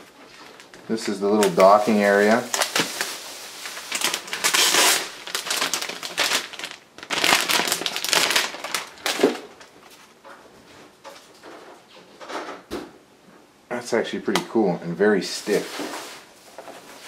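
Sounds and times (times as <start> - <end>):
packaging crinkling and rustling: 0.0 - 10.4, 15.4 - 17.0.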